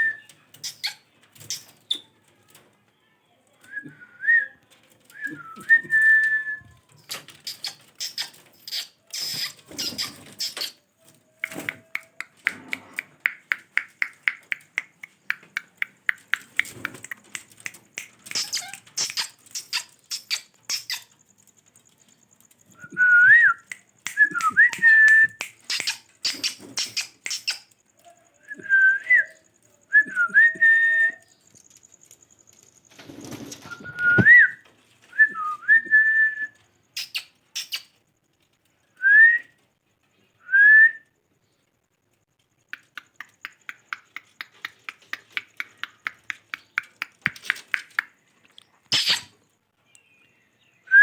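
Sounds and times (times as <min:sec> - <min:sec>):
parrot clicking: 0:11.4 - 0:21.1, 0:25.4 - 0:27.8, 0:42.6 - 0:48.2
parrot whistling: 0:48.9 - 0:49.3.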